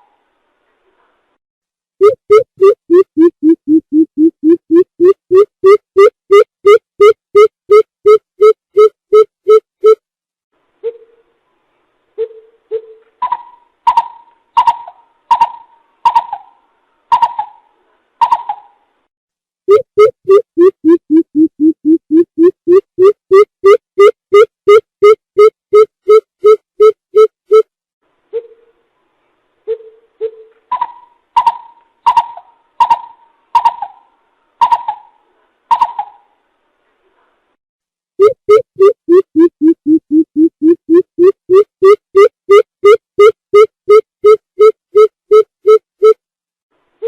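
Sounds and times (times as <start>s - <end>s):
bird hollow hooting: 30.7s - 36.2s.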